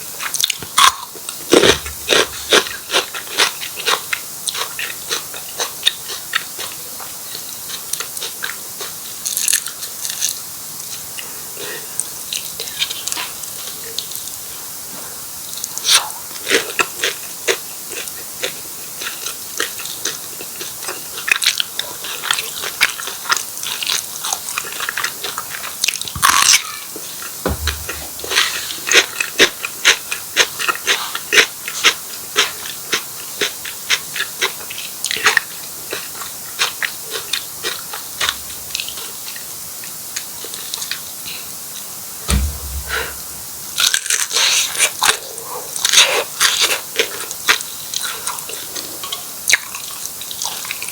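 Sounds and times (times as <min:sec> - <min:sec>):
person eating crunchy food: 0:00.4 - 0:06.2, 0:26.2 - 0:26.8
low thumps: 0:01.6 - 0:02.6, 0:27.4 - 0:28.8, 0:42.3 - 0:43.7.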